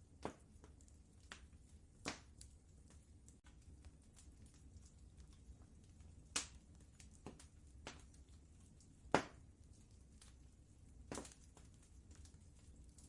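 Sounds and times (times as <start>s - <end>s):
low steady rumble: 0.0s - 13.0s
wood fire crackling and popping: 0.0s - 13.0s.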